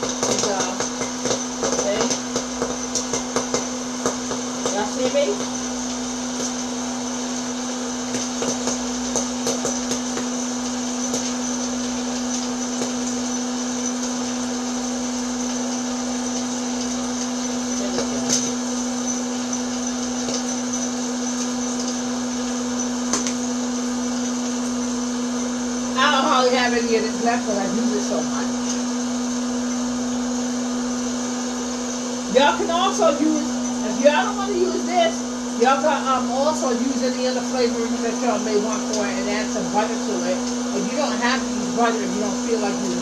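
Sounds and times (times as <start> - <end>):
kernels popping: 0.0 - 25.8
popcorn maker fan humming: 0.0 - 43.0.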